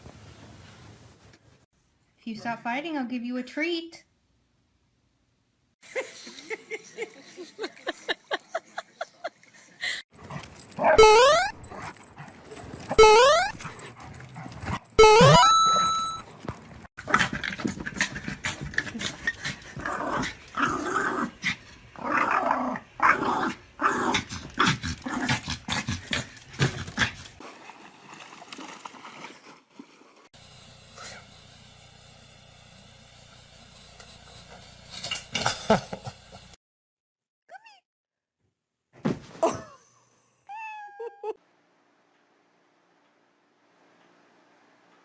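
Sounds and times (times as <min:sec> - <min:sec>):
dog yelping: 0:10.8 - 0:11.6.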